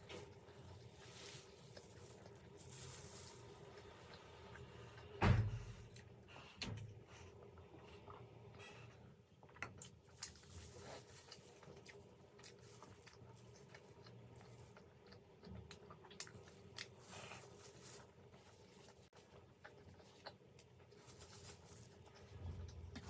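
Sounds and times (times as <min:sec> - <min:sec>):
chewing and biting dumplings: 0:05.8 - 0:23.0.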